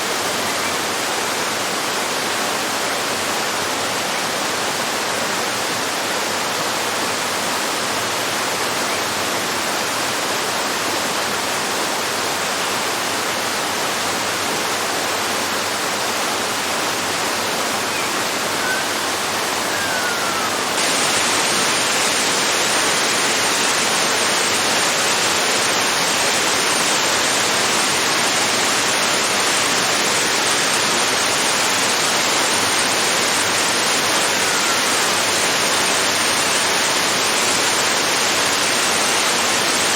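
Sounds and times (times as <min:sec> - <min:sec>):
small waterfall splashing: 0:00.0 - 0:39.9
faint bird chirps: 0:17.8 - 0:21.7.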